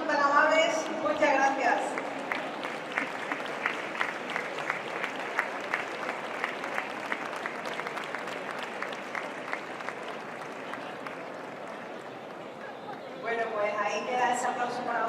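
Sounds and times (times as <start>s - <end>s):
audience applauding: 1.8s - 13.6s.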